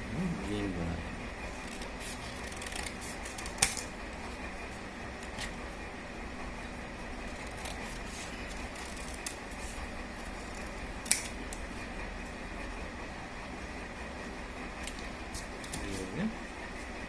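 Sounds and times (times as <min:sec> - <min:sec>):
scissors snipping paper: 0:01.6 - 0:04.0, 0:07.3 - 0:11.8, 0:14.8 - 0:16.1.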